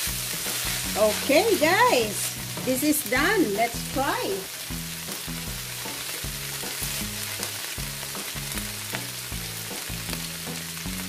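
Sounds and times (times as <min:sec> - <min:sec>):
food sizzling in a wok: 0:00.0 - 0:11.0
soft background music: 0:00.0 - 0:11.0.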